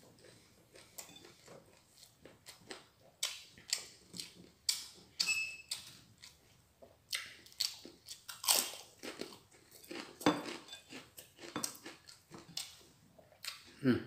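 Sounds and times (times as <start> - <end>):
crunching crisp fried food: 7.1 - 12.8.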